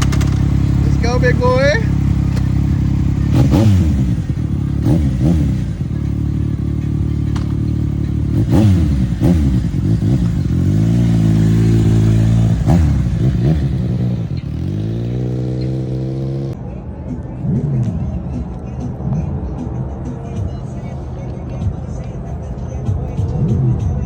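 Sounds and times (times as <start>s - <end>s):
motorcycle engines revving: 0.0s - 24.0s.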